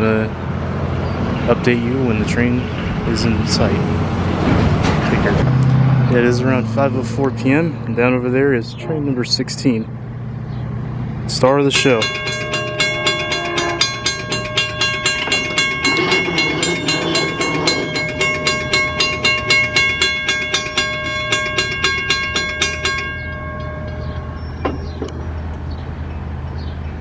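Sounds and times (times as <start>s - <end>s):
low rumble of approaching train: 0.0s - 27.0s
railroad crossing bell ringing: 11.3s - 25.5s.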